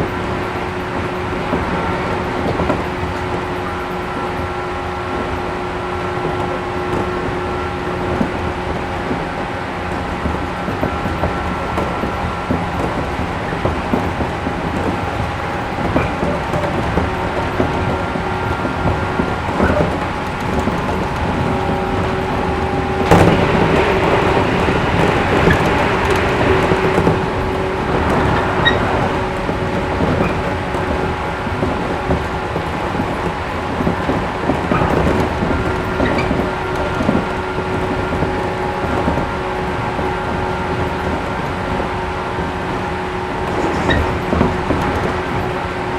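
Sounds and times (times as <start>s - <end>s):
wheel-on-rail rumble: 0.0s - 45.9s
held running gear tones: 9.9s - 41.8s.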